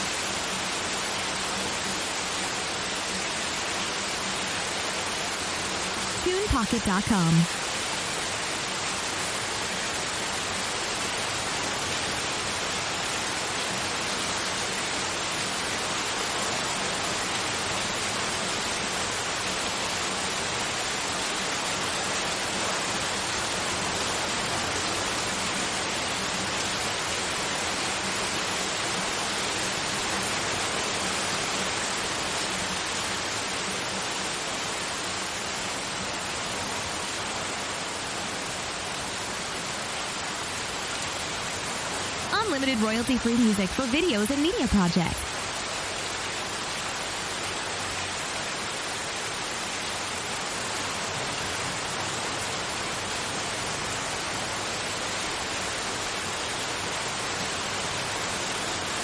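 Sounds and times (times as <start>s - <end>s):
white noise hiss: 0.0s - 59.0s.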